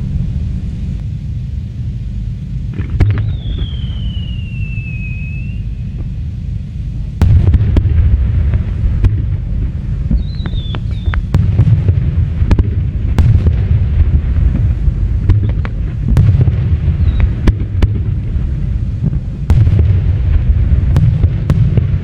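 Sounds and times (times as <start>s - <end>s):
low rumble of shell bursts: 0.0s - 22.0s
firework falling whistle: 2.6s - 6.6s, 10.0s - 12.0s, 15.3s - 17.6s
sharp firework cracks: 2.7s - 6.4s, 7.2s - 22.0s.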